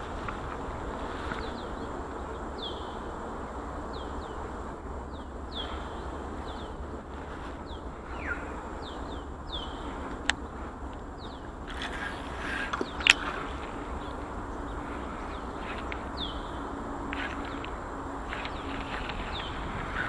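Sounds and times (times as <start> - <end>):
steady background hiss: 0.0 - 20.0
bird chirping: 1.2 - 3.1, 3.9 - 20.0.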